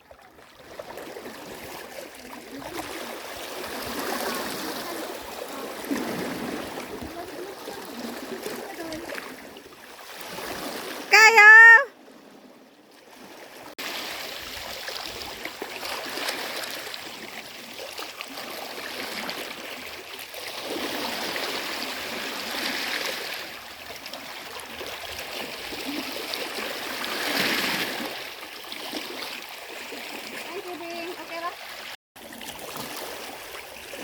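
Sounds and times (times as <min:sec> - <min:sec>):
small sea waves splashing: 0:00.0 - 0:34.0.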